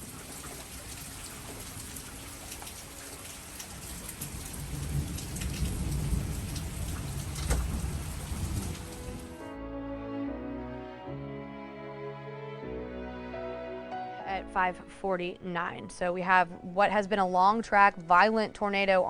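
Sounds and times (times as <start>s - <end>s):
heavy rain falling: 0.0s - 9.4s.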